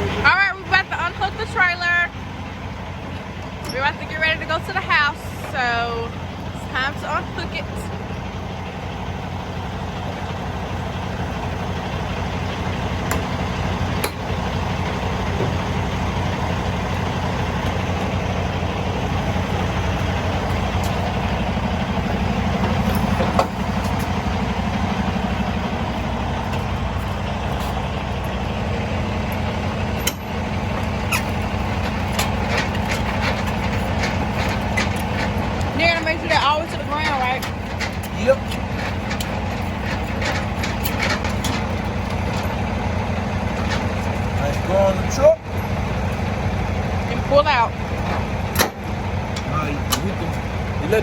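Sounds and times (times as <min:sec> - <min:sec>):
truck diesel engine idling: 0:00.0 - 0:51.0
sharp clicks and knocks: 0:30.0 - 0:42.6.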